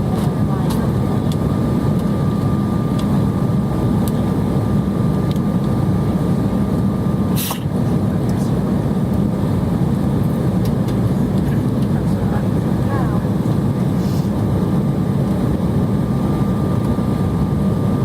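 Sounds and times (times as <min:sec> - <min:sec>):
jet engines and airflow roar: 0:00.0 - 0:18.0.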